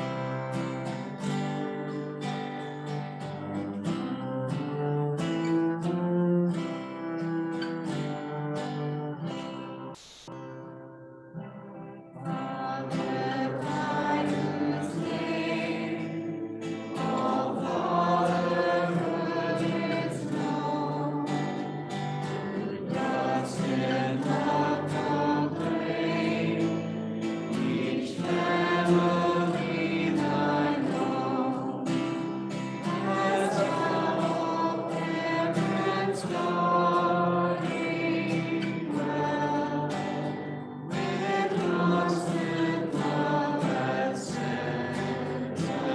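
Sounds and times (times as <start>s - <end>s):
congregation singing a hymn: 12.2s - 45.9s.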